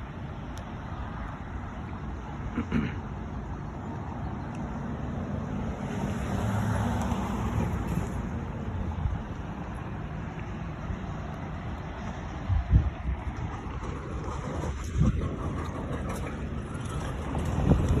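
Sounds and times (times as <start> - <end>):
background traffic noise: 0.0 - 18.0
vehicle passing: 1.0 - 18.0
wind on microphone: 12.0 - 18.0.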